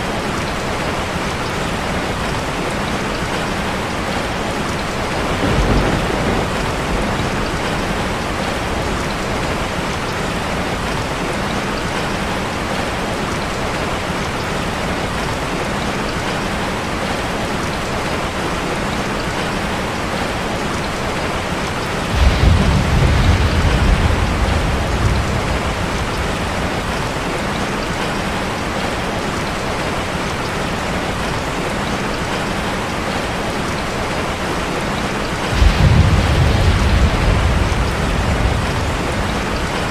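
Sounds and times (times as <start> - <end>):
rain drumming on a metal roof: 0.0 - 39.9
low thunder rumble: 4.8 - 11.0, 22.0 - 28.4, 35.4 - 39.9.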